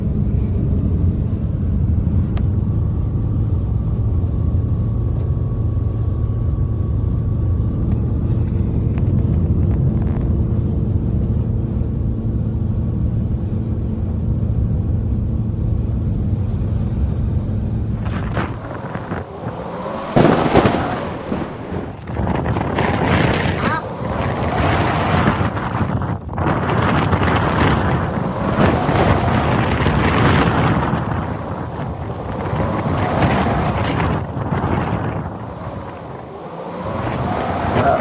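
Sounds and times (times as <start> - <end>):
wind on microphone: 17.9 - 38.0
motor drone: 18.0 - 38.0.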